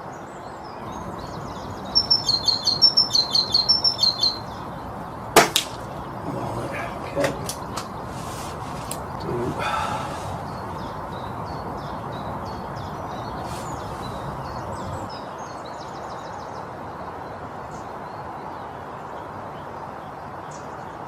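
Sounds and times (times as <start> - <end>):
small birds chirping and trilling: 0.0 - 21.0
outdoor background hum: 0.8 - 15.1.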